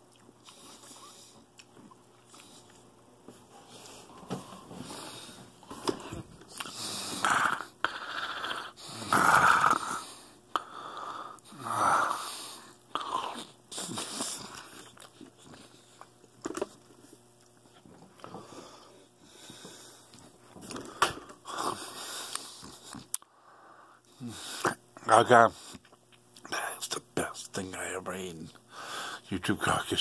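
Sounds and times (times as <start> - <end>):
man chewing juicy fruit: 0.0 - 7.3, 12.8 - 23.3, 25.6 - 26.5.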